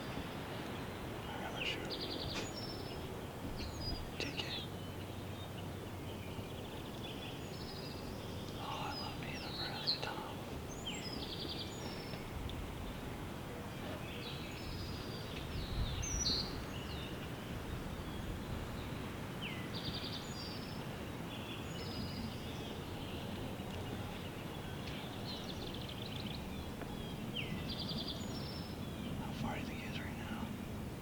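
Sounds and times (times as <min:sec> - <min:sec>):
wind rumble: 0:10.0 - 0:19.7.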